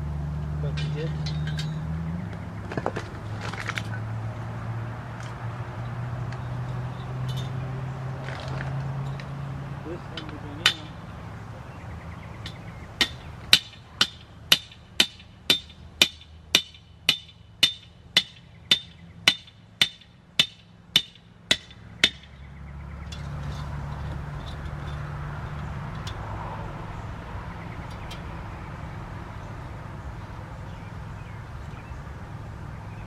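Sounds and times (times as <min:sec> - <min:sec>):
hammer driving a nail: 0:13.0 - 0:22.3.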